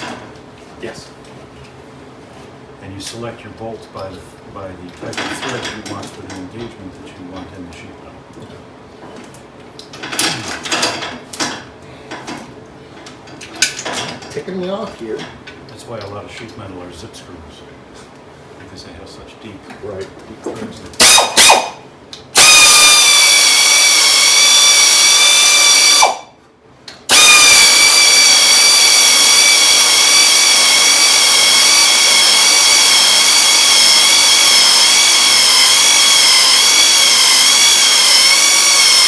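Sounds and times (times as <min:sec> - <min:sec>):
power tool high whine: 0:22.4 - 0:26.4, 0:27.1 - 0:39.0.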